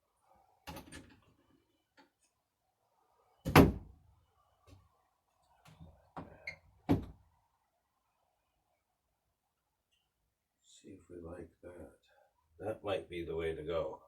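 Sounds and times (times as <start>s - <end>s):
loud door thunk: 3.5s - 3.8s.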